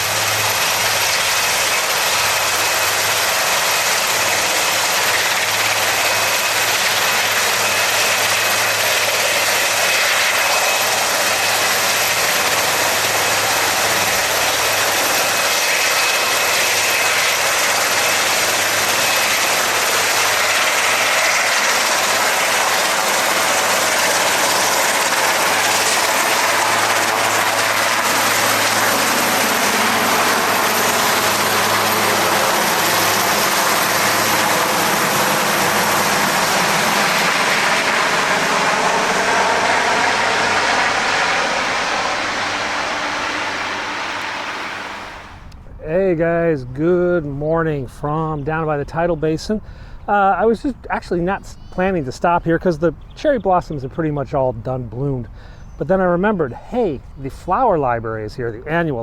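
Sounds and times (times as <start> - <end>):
helicopter engine and rotor: 0.0 - 45.6.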